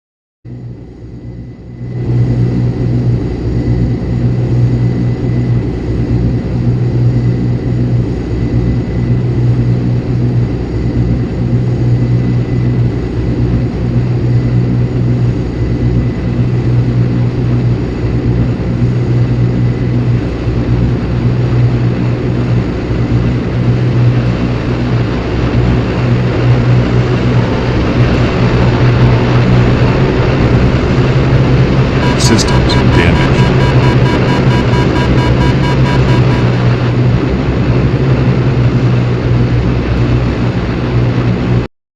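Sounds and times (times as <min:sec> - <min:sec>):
aircraft engine droning: 0:00.5 - 0:41.6
faint high whine: 0:32.0 - 0:37.0.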